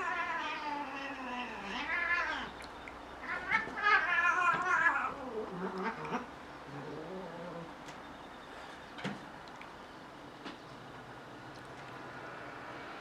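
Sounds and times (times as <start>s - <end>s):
cat meowing: 0.0s - 2.5s.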